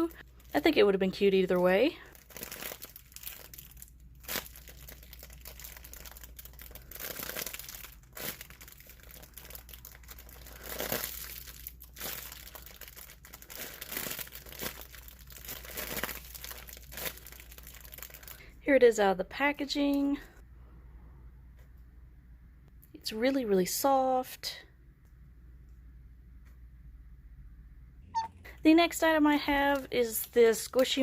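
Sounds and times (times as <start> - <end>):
plastic packaging crinkling: 0.1 - 18.4, 29.0 - 31.0.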